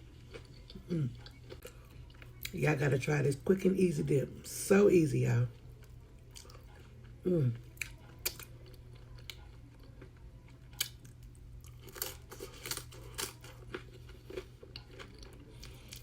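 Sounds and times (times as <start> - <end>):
faint low hum: 0.0 - 16.0
wet chewing and smacking: 0.1 - 2.6, 5.8 - 16.0.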